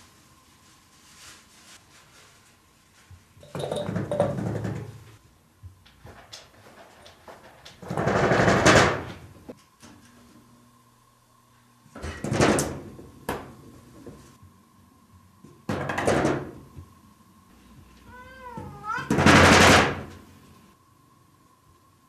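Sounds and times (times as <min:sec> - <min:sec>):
cat meowing: 0:18.1 - 0:19.2.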